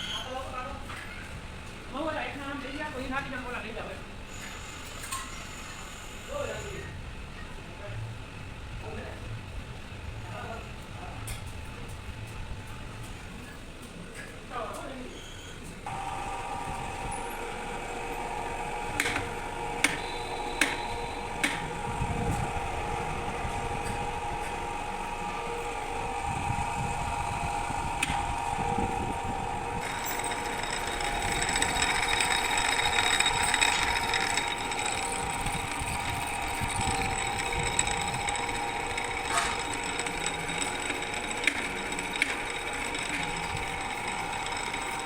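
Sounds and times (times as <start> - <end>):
drill motor humming: 15.9 - 45.0
high-pitched whine: 19.4 - 45.0.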